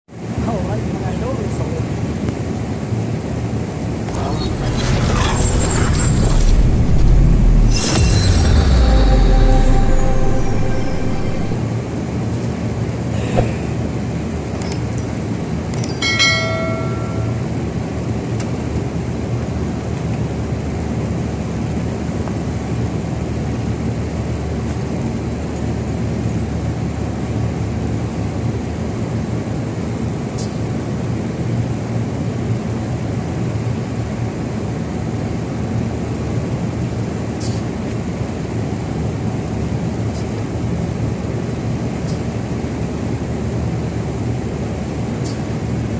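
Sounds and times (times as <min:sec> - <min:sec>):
reaper engine running: 0:03.9 - 0:11.6
brief ringing tone: 0:04.8 - 0:11.6, 0:16.0 - 0:17.6.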